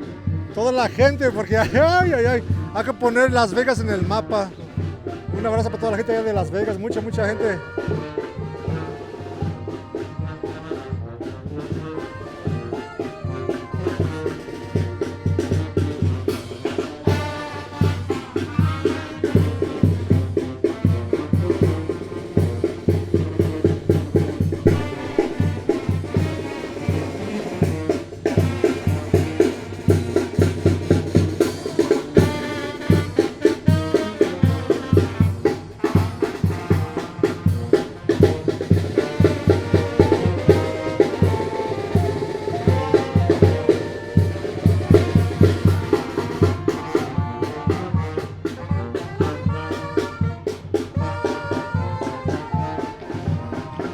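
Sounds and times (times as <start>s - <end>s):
brass band playing: 0.0s - 53.9s
snare drum: 0.0s - 53.9s
bass drum beat: 0.5s - 7.9s, 19.3s - 26.5s, 27.8s - 47.2s.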